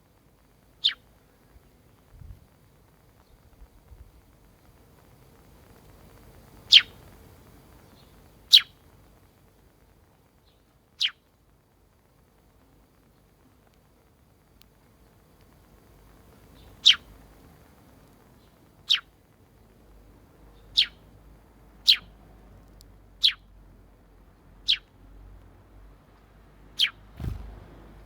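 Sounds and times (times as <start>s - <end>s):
sparrow chirping: 0.8s - 1.1s, 6.6s - 7.1s, 7.8s - 8.8s, 10.4s - 11.2s, 16.4s - 17.2s, 18.4s - 19.2s, 20.5s - 21.1s, 21.8s - 22.2s, 23.2s - 23.5s, 24.6s - 24.9s, 26.8s - 27.5s
soft thump: 27.2s - 28.0s.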